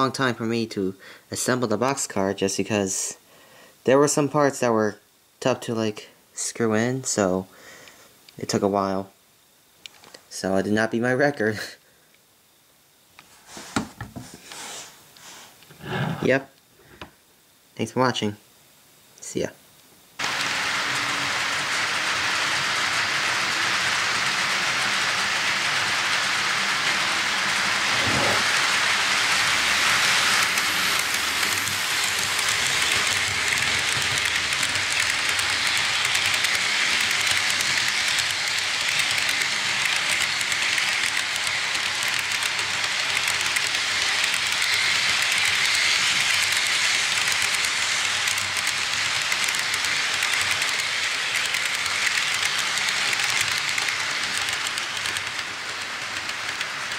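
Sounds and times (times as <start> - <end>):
steady rushing noise: 20.2 - 56.9.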